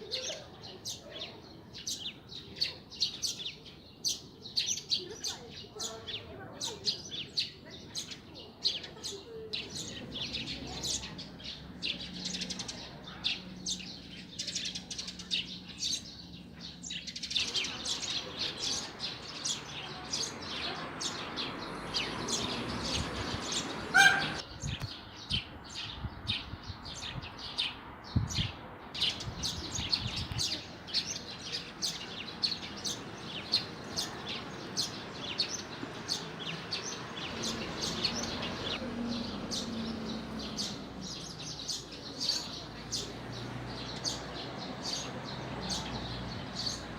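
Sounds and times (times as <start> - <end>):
songbirds chirping: 0.0 - 46.9
peacock call: 23.9 - 24.4.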